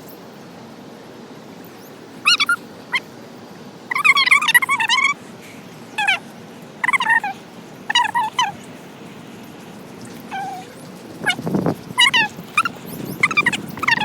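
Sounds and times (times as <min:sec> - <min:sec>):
high-pitched wavering animal cries: 0:01.8 - 0:03.1, 0:03.9 - 0:05.2, 0:06.0 - 0:08.7, 0:10.1 - 0:14.0.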